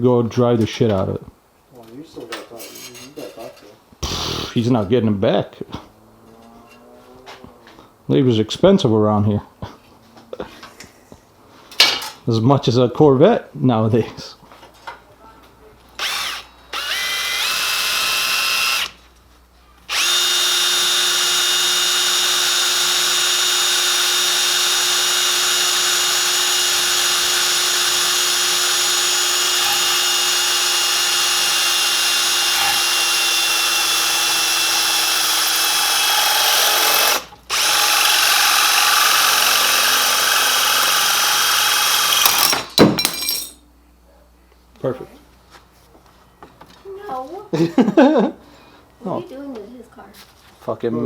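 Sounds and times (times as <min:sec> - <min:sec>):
electric power tool whining: 0:16.0 - 0:19.0, 0:19.9 - 0:42.6.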